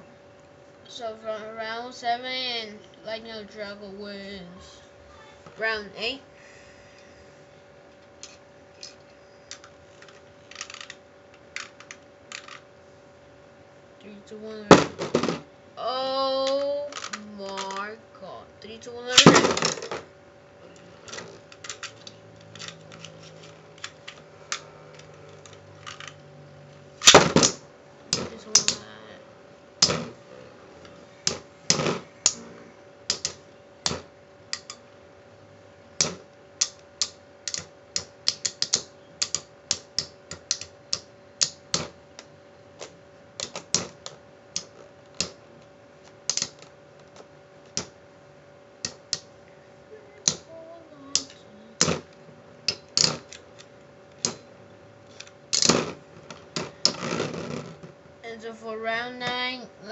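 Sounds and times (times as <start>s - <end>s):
spinning tops clicking and knocking: 8.2s - 12.6s, 16.4s - 18.0s, 36.0s - 41.9s, 52.7s - 53.6s.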